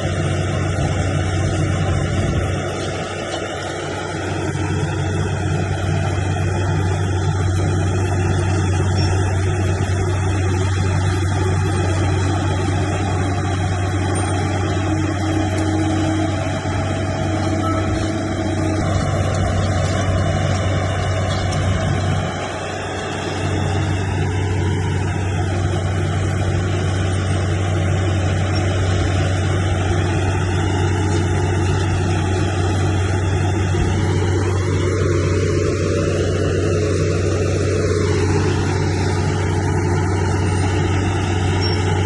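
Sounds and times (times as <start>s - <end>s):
heavy machinery diesel engine running: 0.0s - 42.0s.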